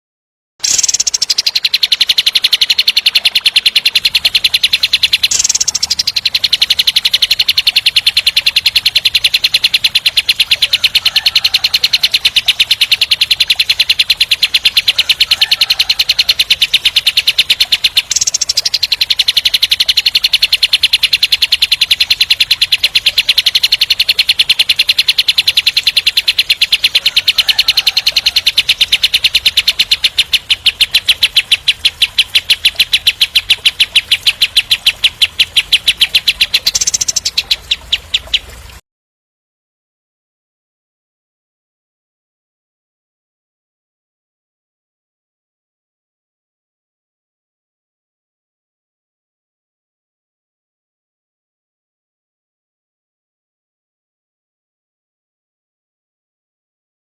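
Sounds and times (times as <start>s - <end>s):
songbird singing a rapid trill: 0.6s - 38.5s.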